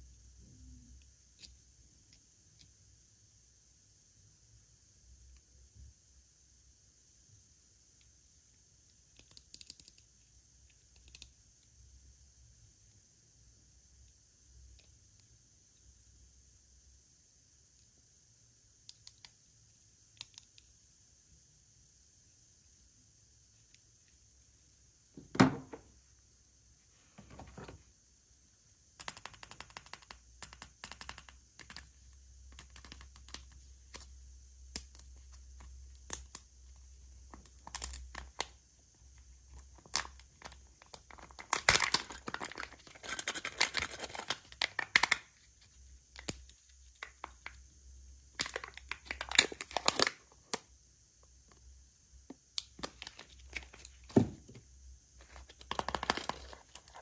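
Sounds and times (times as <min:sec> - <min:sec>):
packaging crinkling and tearing: 0:39.8 - 0:45.2, 0:55.3 - 0:57.0.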